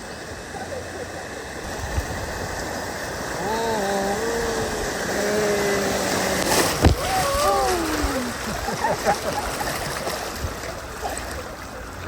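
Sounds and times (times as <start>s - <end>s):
river water rushing: 0.0s - 12.0s
person calling out: 3.4s - 8.4s.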